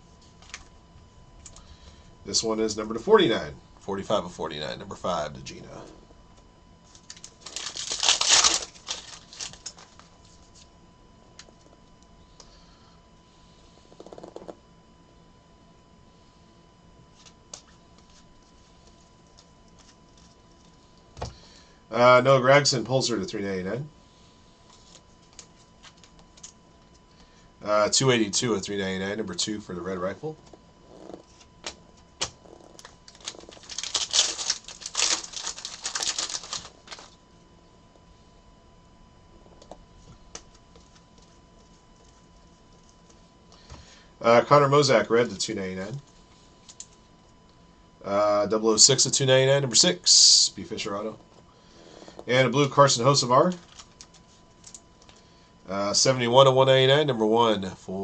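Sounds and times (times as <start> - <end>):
cards rustling: 6.9 - 10.7, 31.2 - 37.1, 53.4 - 54.8.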